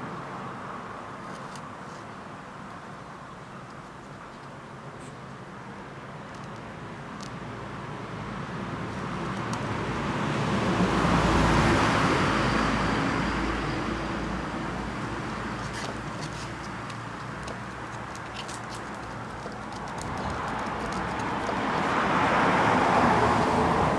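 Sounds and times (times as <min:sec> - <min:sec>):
road vehicle passing: 0:08.3 - 0:23.9.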